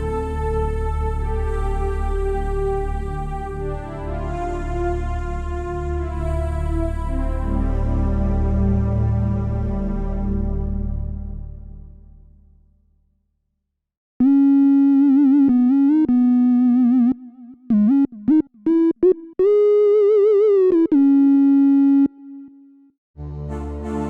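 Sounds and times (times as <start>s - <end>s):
synthesizer lead melody with vibrato: 0.0s - 8.6s, 14.2s - 24.0s.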